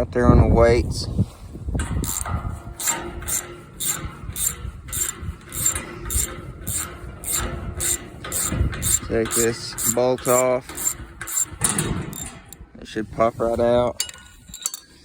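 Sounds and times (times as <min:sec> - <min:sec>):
ratchet wrench clicking: 0:01.8 - 0:12.6, 0:14.0 - 0:14.9.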